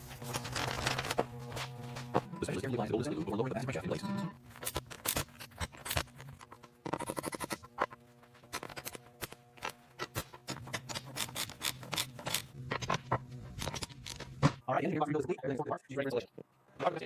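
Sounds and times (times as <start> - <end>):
metal parts clicking and scraping: 4.6 - 13.0, 13.6 - 14.3.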